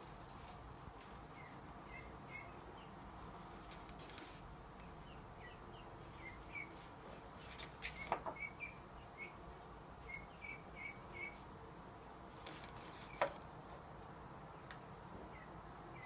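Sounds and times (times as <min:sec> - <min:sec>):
faint bird chirping: 0:01.1 - 0:06.9, 0:07.7 - 0:11.5, 0:14.5 - 0:16.0.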